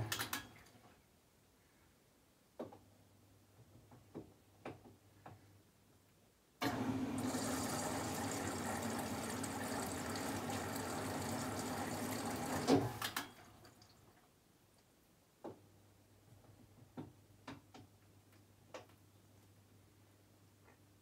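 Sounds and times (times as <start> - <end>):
water rushing into washing machine: 6.6 - 13.8.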